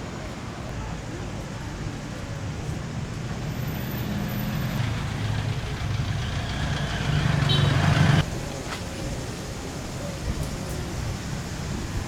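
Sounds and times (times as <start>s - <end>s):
street traffic: 0.0s - 12.0s
vehicle engine running: 3.2s - 8.2s.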